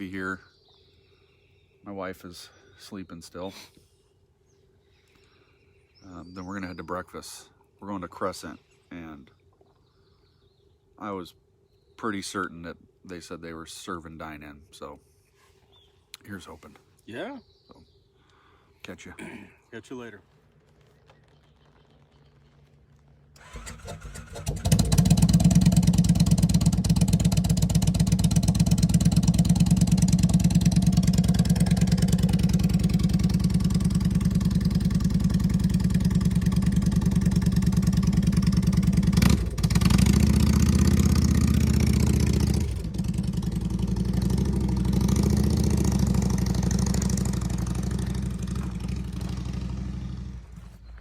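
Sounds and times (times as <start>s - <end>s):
motorcycle engine starting and running: 20.6s - 51.0s.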